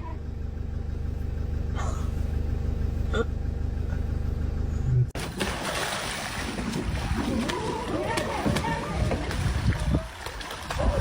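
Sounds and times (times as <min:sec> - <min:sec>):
vehicle engine idling: 0:00.0 - 0:05.2.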